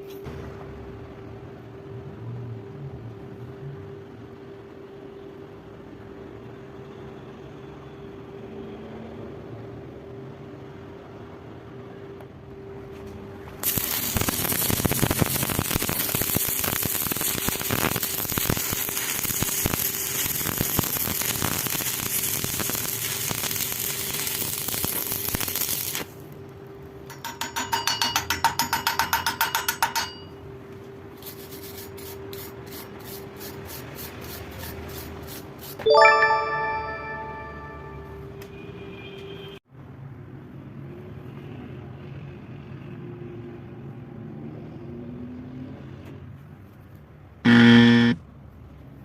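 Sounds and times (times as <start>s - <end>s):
welding arc crackling: 13.6s - 26.4s, 47.5s - 48.2s.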